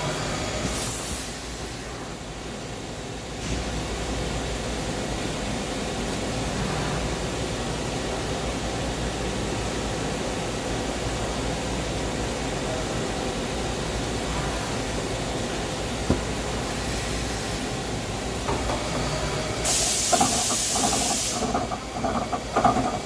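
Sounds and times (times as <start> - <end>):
machinery humming: 8.9 - 23.0.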